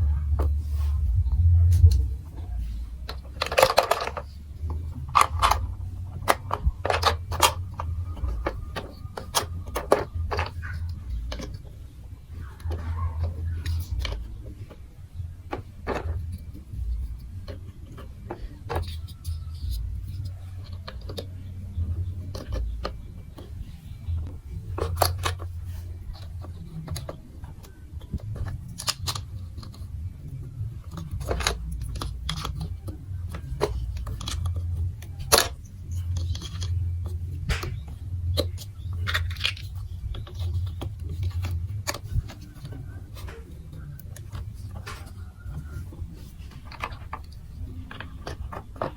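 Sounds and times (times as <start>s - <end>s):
low rumble: 0.0s - 17.8s
plastic blocks clicking and clattering: 1.7s - 48.9s.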